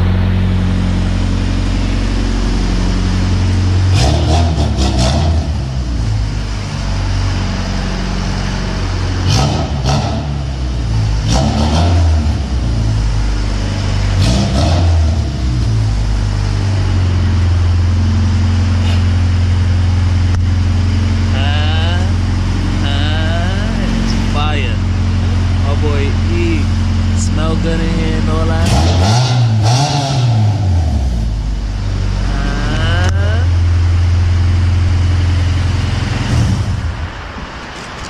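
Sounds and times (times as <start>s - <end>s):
car engine droning and revving: 0.0s - 38.0s
exhaust crackles: 0.0s - 38.0s.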